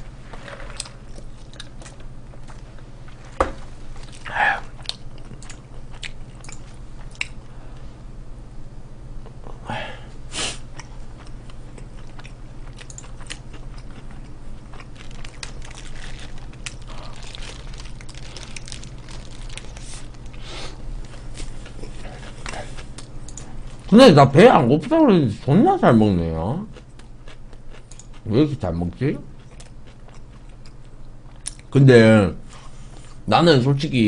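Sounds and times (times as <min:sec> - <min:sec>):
steady low hum: 0:00.0 - 0:34.0
person biting and chewing food: 0:04.0 - 0:07.4, 0:10.4 - 0:23.2.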